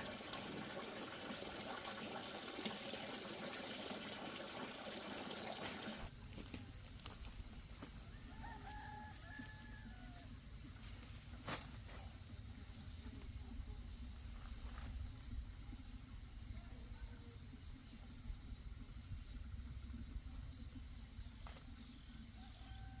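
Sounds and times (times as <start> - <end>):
rooster crowing: 8.0 - 10.3, 22.4 - 23.0.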